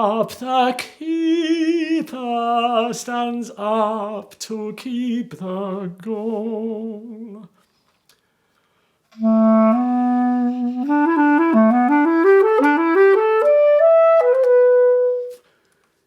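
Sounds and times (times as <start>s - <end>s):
clarinet playing: 9.1s - 15.4s.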